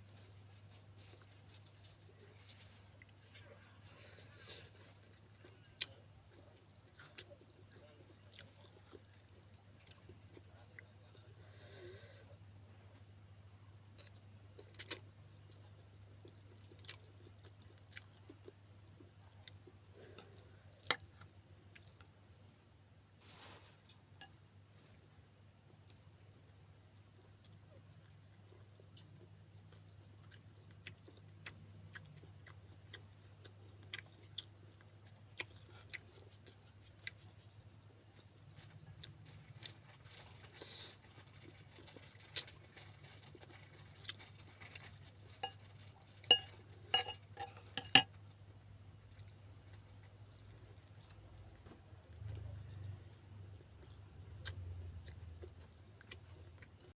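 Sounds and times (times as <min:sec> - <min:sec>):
chewing: 0:00.0 - 0:12.2, 0:13.9 - 0:22.2, 0:27.4 - 0:48.2, 0:53.5 - 0:56.9
cricket trilling: 0:00.0 - 0:56.9
cutlery on a plate: 0:46.3 - 0:48.1.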